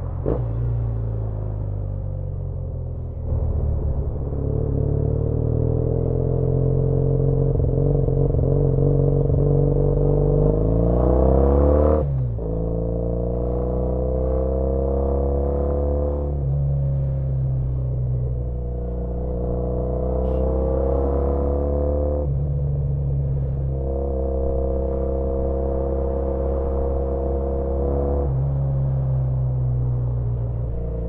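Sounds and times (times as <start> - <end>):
motorcycle engine accelerating: 2.1 - 17.2.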